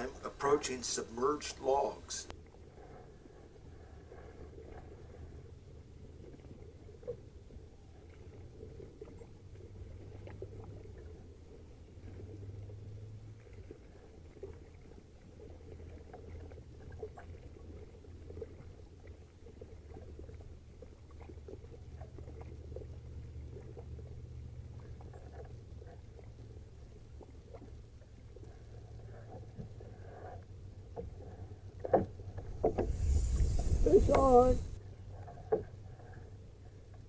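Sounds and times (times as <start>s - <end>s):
faint water splashes and drips: 0.0s - 37.0s
low steady rumble: 19.8s - 37.0s.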